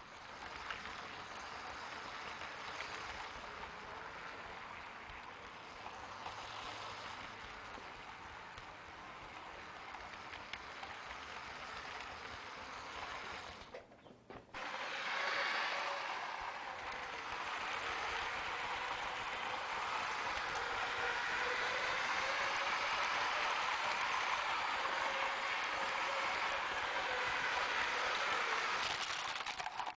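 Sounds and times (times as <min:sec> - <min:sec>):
toy trains rattling on track: 0:00.0 - 0:13.9, 0:14.6 - 0:30.0.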